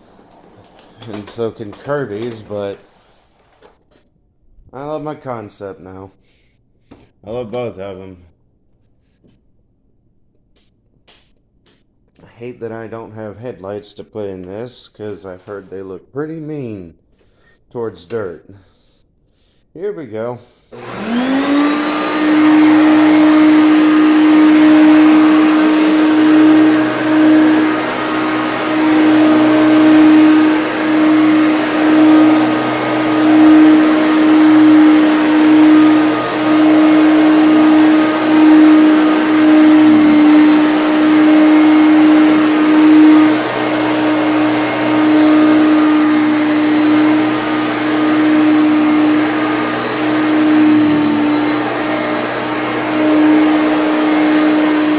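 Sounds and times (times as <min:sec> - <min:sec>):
vacuum cleaner motor whining: 0:00.0 - 0:03.2, 0:20.8 - 0:54.9.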